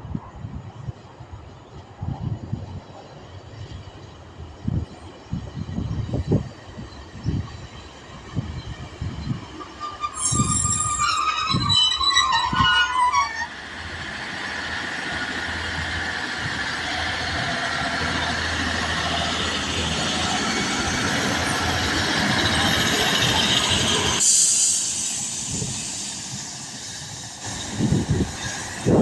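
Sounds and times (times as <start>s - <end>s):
train rolling noise: 0.1s - 29.0s
high squealing: 9.3s - 13.6s.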